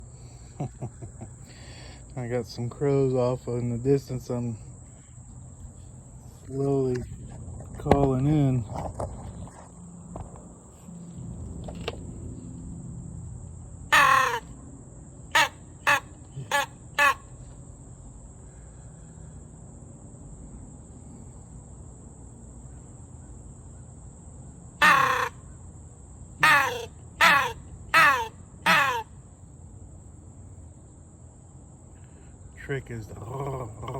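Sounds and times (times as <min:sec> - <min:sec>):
crow call caws: 0:13.9 - 0:14.6, 0:15.3 - 0:17.4, 0:24.8 - 0:25.6, 0:26.4 - 0:29.2.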